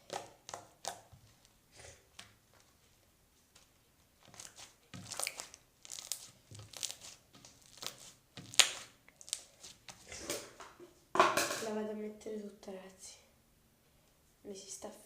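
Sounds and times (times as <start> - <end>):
slime squishing by hand: 0.0 - 2.9, 3.5 - 10.6
squishy crackles: 4.2 - 10.6.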